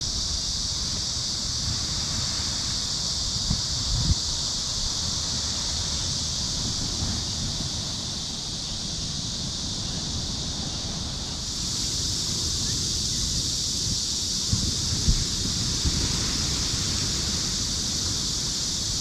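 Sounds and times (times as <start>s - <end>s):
high-pitched hiss: 0.0s - 19.0s
wind on microphone: 0.0s - 19.0s
sea surf: 4.6s - 19.0s.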